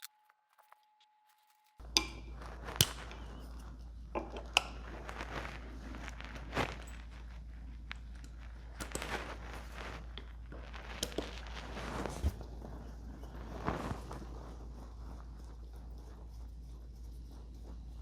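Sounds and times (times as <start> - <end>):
steady low hum: 1.8 - 18.0.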